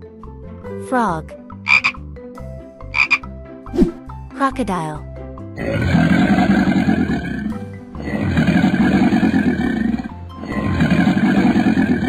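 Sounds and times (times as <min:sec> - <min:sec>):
background music: 0:00.0 - 0:12.0
cartoon crocodile growling: 0:05.6 - 0:12.0.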